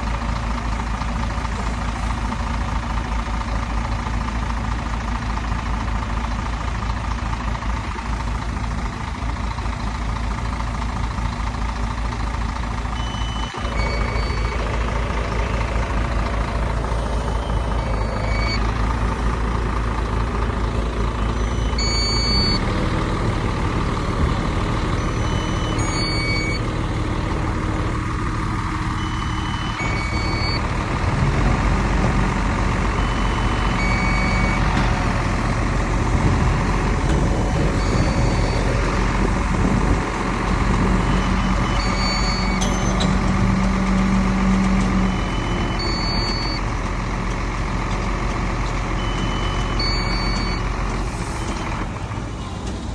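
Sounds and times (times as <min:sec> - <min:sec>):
diesel machinery running: 0:00.0 - 0:52.9
reversing alarm beeps: 0:12.9 - 0:14.9, 0:16.7 - 0:18.7, 0:21.2 - 0:22.8, 0:24.6 - 0:26.7, 0:28.2 - 0:31.6, 0:32.2 - 0:34.9, 0:37.7 - 0:38.8, 0:40.7 - 0:46.7, 0:48.9 - 0:51.6.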